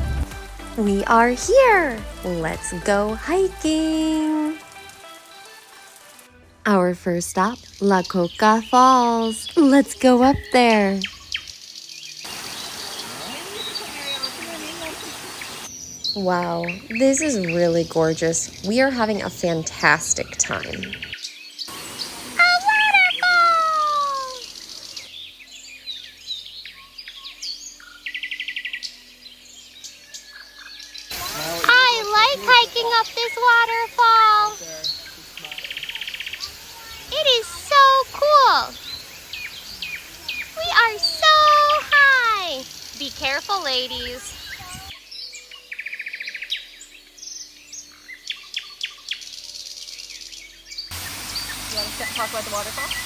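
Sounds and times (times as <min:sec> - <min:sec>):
birds chirping and whistling: 0:00.7 - 0:04.6, 0:06.9 - 0:53.0
rapid bird trill: 0:30.4 - 0:44.8, 0:50.1 - 0:53.0
high-pitched insect buzz: 0:31.1 - 0:45.0, 0:50.9 - 0:53.0.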